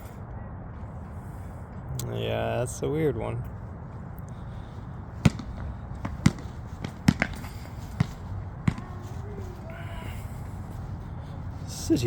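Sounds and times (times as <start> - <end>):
basketball bouncing: 5.1 - 10.2.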